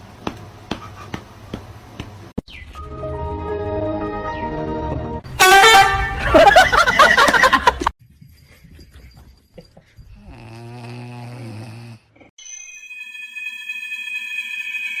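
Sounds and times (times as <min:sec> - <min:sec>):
low drawn-out snore: 0:10.2 - 0:12.1
steady high tones: 0:12.4 - 0:15.0.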